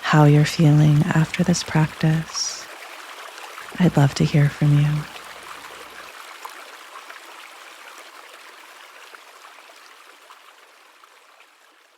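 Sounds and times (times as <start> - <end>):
river running over rocks: 0.0 - 2.8, 3.8 - 5.8.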